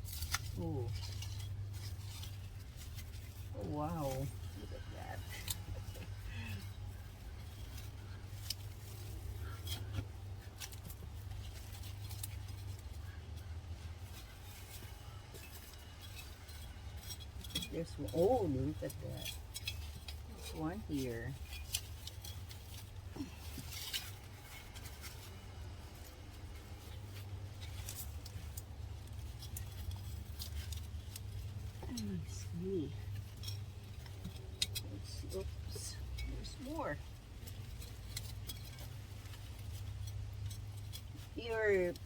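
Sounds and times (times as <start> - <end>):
hands digging through soil: 0.0 - 14.4
steady low hum: 0.0 - 42.0.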